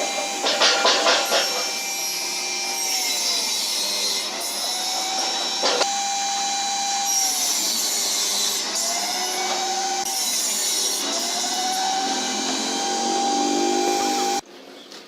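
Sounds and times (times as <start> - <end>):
power tool motor whine: 0.0 - 14.4.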